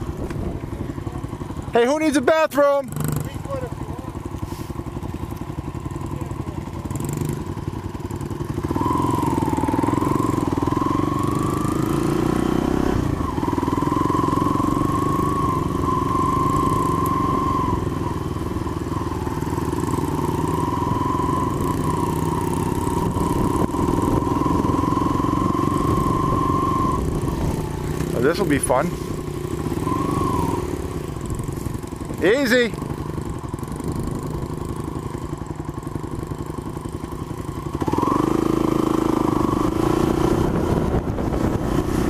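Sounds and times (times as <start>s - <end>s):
motorbike engine running: 0.0s - 42.0s.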